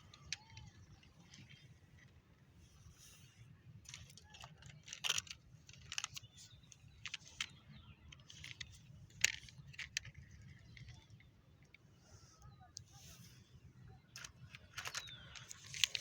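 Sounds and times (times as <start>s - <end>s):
small hard objects clicking: 0.0s - 1.6s, 3.9s - 11.1s, 14.2s - 16.0s.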